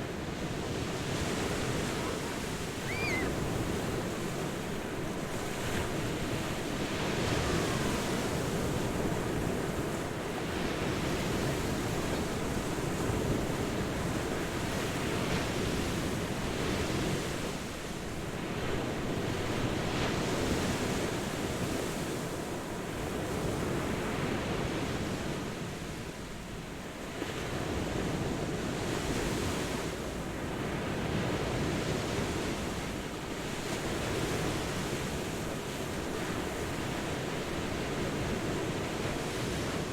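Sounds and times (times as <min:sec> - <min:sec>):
ocean waves breaking: 0:00.9 - 0:06.8.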